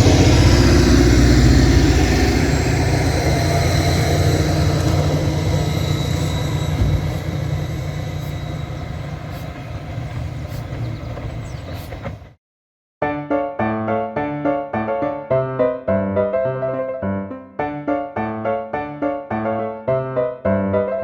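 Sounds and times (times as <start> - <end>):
miniature train rumbling: 0.0 - 12.4.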